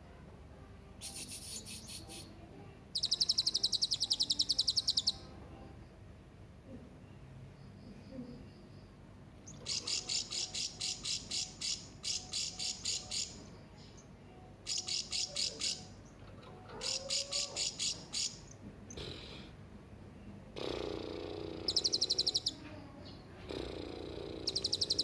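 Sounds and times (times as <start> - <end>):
parrot high sharp chirps: 1.0 - 2.3, 3.0 - 5.3, 9.5 - 13.4, 14.6 - 16.0, 16.8 - 18.5, 21.6 - 22.6, 24.4 - 25.0.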